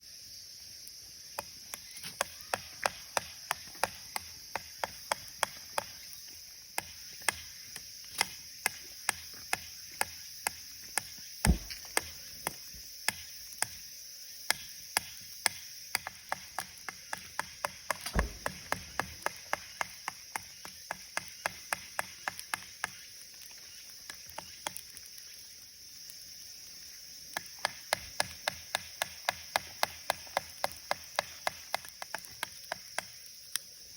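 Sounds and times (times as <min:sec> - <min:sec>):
wood fire crackling and popping: 0:01.3 - 0:13.8, 0:15.0 - 0:33.8
dull low thumps: 0:11.5 - 0:11.9.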